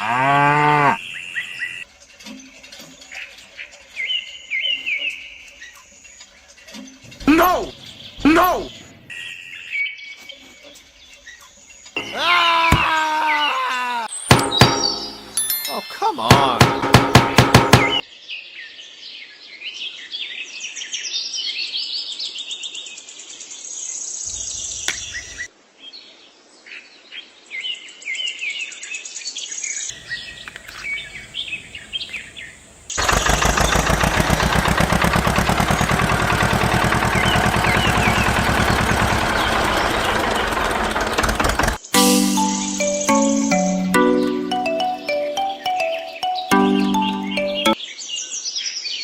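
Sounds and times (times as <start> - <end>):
birds chirping: 0.0 - 18.1, 24.2 - 25.5, 29.8 - 48.0
engine running loudly: 33.0 - 41.8.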